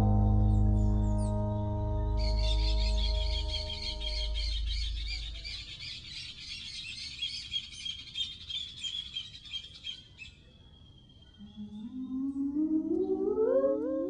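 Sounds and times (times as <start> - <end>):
low rising musical tone: 0.0 - 5.5, 11.4 - 14.0
birds chirping: 0.0 - 10.2.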